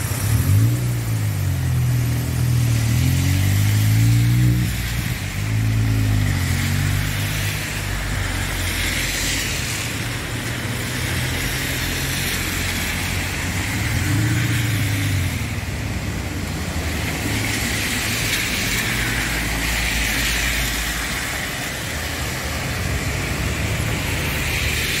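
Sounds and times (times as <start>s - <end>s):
car engines: 0.0s - 25.0s
rain hiss: 0.0s - 25.0s
tyres hissing on wet road: 0.0s - 25.0s.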